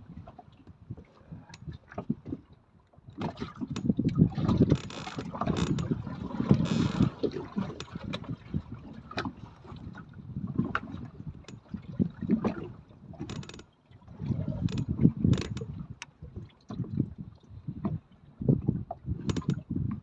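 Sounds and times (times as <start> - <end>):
water slapping against boat hull: 0.1 - 20.0
wind buffeting microphone: 14.1 - 20.0
sharp clicks and knocks: 19.3 - 19.6.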